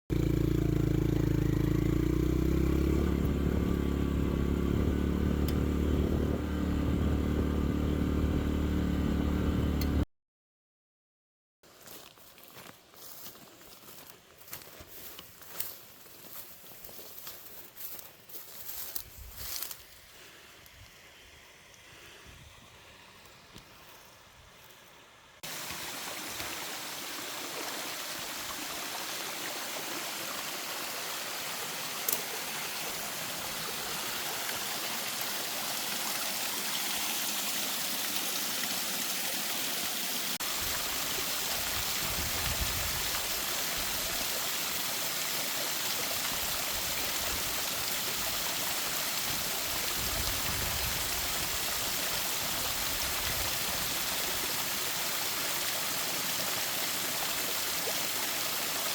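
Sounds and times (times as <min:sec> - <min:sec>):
stream flowing over rocks: 0:22.8 - 0:58.9.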